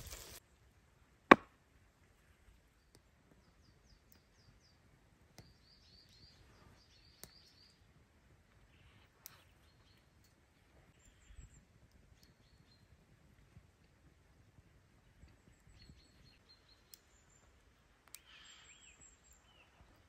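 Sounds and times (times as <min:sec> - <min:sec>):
small bird chirping: 0:05.4 - 0:07.9, 0:08.5 - 0:13.0, 0:15.2 - 0:20.0.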